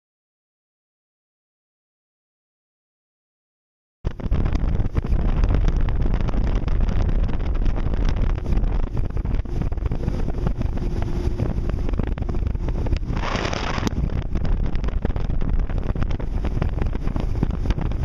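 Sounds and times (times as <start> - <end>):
boat low rumble: 4.1 - 18.0
wind buffeting microphone: 4.1 - 18.0.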